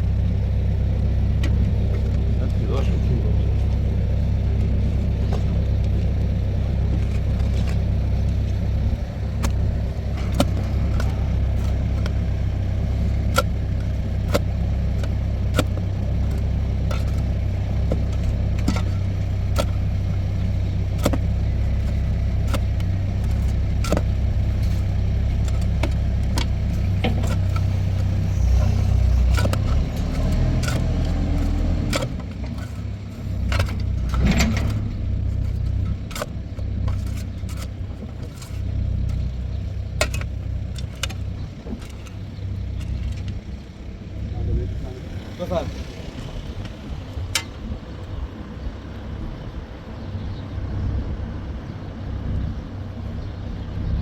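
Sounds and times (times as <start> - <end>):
vehicle engine low rumble: 0.0 - 54.0
light rattles and clicks: 6.9 - 45.7.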